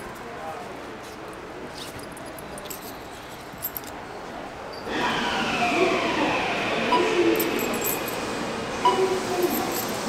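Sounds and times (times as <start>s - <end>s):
train electric motor whine: 4.8s - 10.0s
low station hum: 4.9s - 10.0s.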